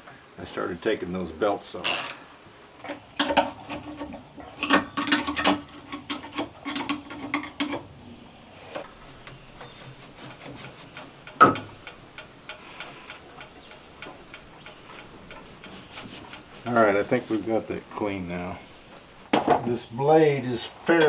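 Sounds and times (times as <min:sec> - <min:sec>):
faint ticking: 0:00.0 - 0:19.3
ratchet clicking: 0:01.8 - 0:02.3, 0:08.8 - 0:19.0.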